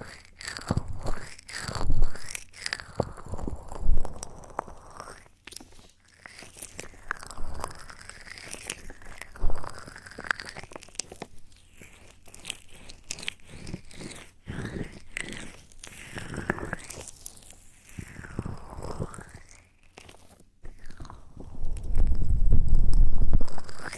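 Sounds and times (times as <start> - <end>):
soft clicks and crackles: 15.1 - 23.9.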